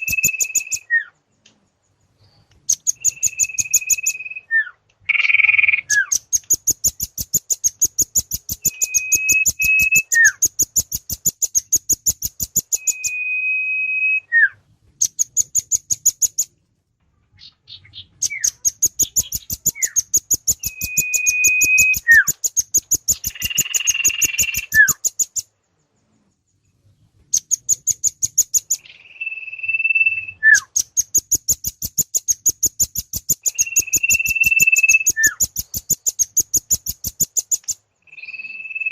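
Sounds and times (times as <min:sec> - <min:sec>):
long level bird whistles: 0:00.0 - 0:01.2, 0:02.7 - 0:16.4, 0:17.7 - 0:25.4, 0:27.4 - 0:38.9
high thin bird chips: 0:05.9 - 0:12.9, 0:18.3 - 0:25.4, 0:30.6 - 0:37.9
buzzy bird call: 0:17.4 - 0:25.4, 0:27.4 - 0:38.9.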